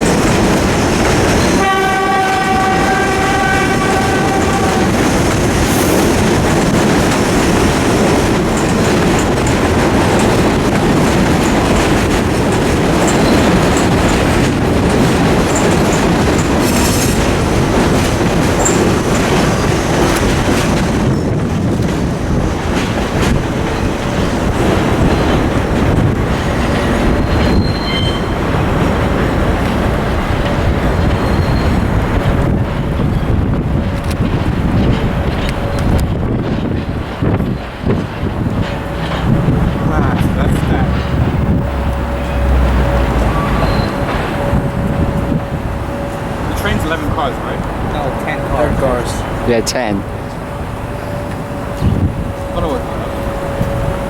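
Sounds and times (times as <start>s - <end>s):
train wheel clatter: 0.0s - 54.0s
train chorded horn: 1.5s - 5.0s
faint wheel squeal: 27.2s - 28.4s, 31.1s - 31.9s, 43.3s - 44.2s.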